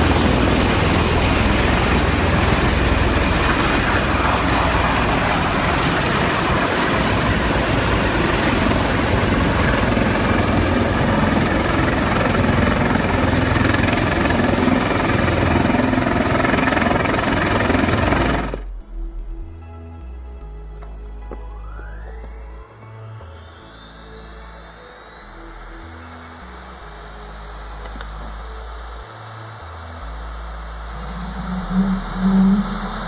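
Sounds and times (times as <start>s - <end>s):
helicopter rotor and engine: 0.0s - 18.8s, 26.8s - 33.0s.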